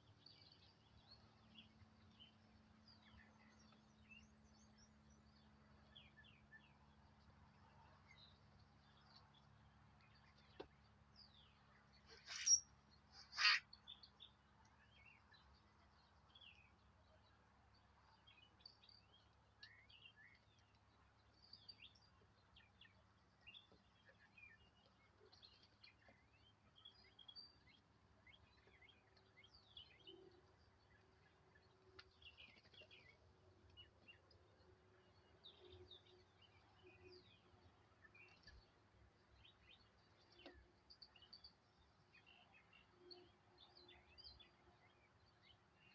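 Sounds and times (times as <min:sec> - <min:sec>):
faint small birds chirping: 0:00.0 - 0:45.9
raven calls: 0:13.2 - 0:13.6.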